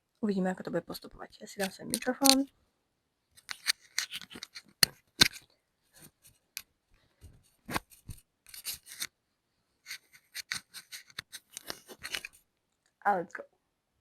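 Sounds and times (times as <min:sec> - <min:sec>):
microphone handling clicks and rustles: 0:03.4 - 0:06.4, 0:07.2 - 0:09.1, 0:09.9 - 0:12.4.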